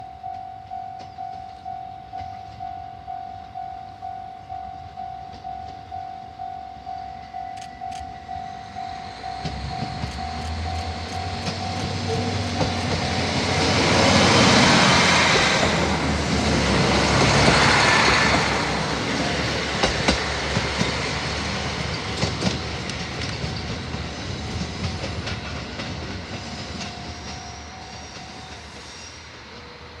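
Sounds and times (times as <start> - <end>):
diesel railcar engine rumbling: 0.0 - 30.0
train wheels clicking on rail joints: 6.9 - 29.9.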